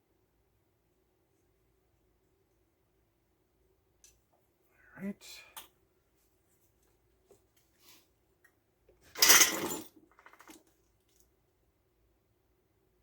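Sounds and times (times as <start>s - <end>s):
metal tools clattering: 9.1s - 10.6s.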